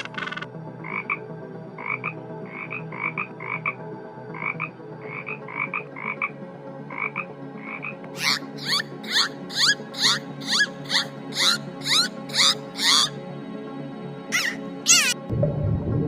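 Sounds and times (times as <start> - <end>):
animal double-note calls: 8.2 - 13.1
high chirps sweeping upward: 8.2 - 13.1, 14.3 - 15.2.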